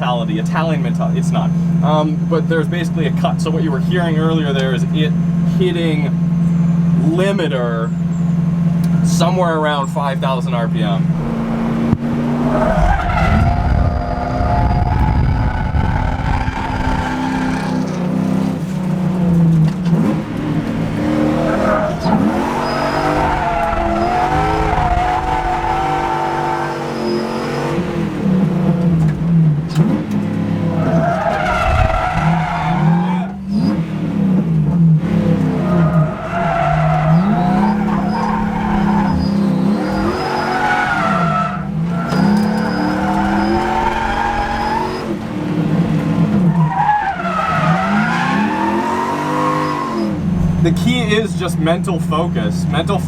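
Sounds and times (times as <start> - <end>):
car engine revving hard: 8.4 - 53.0
tyres squealing: 10.8 - 28.0, 30.8 - 33.7, 35.4 - 51.9.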